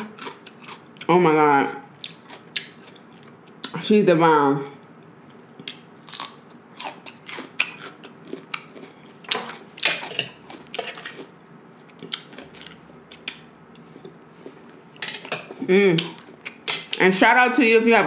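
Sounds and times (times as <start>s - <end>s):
crunching and chewing cucumber: 0.0s - 1.1s, 1.9s - 3.7s, 5.2s - 15.0s.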